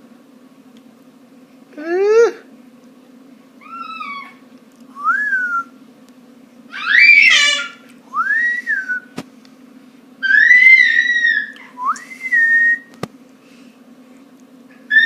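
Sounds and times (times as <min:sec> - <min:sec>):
pet whining: 0:03.6 - 0:04.4, 0:06.7 - 0:07.8, 0:10.2 - 0:11.8, 0:14.8 - 0:15.0.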